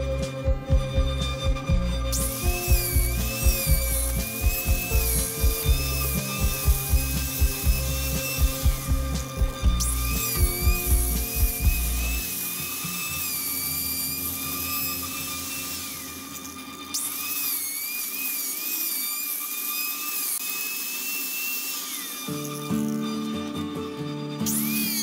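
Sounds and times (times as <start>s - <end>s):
angle grinder sanding wood: 0.0s - 25.0s.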